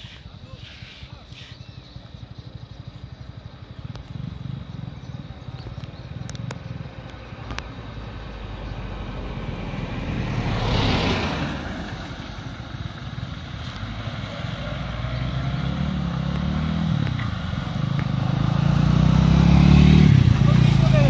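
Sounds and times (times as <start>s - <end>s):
small motorcycle engines running: 0.0s - 8.1s, 12.7s - 21.0s
vehicle passing: 3.4s - 21.0s.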